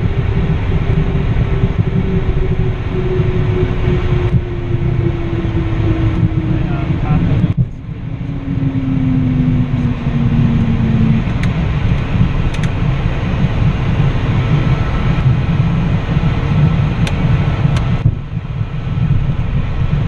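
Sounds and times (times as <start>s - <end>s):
falling tone: 0.0s - 12.5s
jet cockpit low rumble: 0.0s - 20.0s
sharp clicks: 11.3s - 12.8s.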